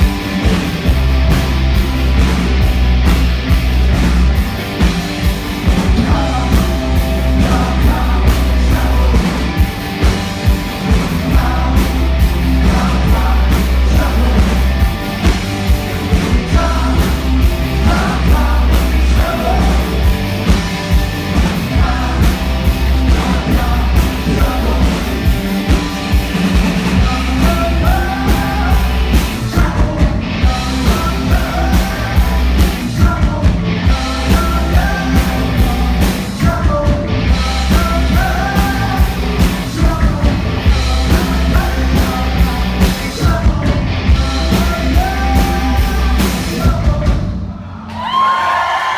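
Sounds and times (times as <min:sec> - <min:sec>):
live rock band playing: 0:00.0 - 0:47.5
person singing: 0:06.0 - 0:09.6, 0:10.8 - 0:14.8, 0:16.0 - 0:20.4, 0:21.4 - 0:25.4, 0:27.0 - 0:48.3.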